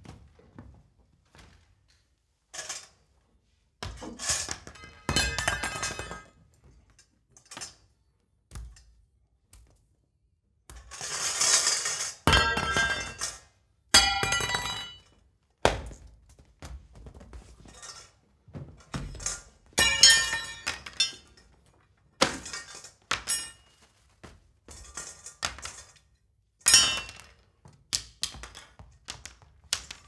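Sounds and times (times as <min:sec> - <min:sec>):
small hard objects crashing on floor: 0:03.8 - 0:06.3, 0:10.7 - 0:13.4, 0:14.0 - 0:15.1, 0:19.0 - 0:21.3, 0:24.7 - 0:26.0, 0:26.6 - 0:30.0.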